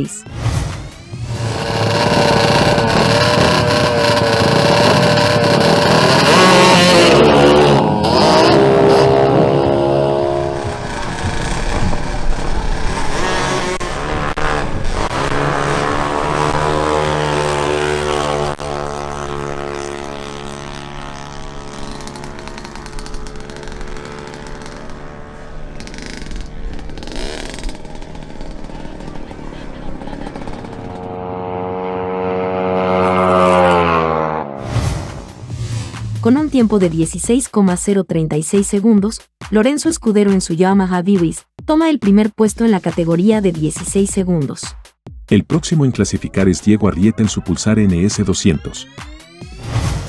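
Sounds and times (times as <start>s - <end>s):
scooter and motorcycle engines revving: 0.2s - 34.6s.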